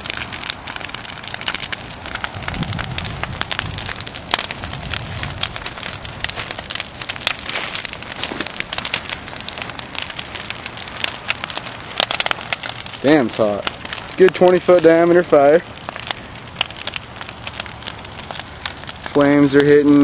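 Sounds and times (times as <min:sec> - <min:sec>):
bonfire crackling and popping: 0:00.0 - 0:20.0
low rumble: 0:01.8 - 0:13.0.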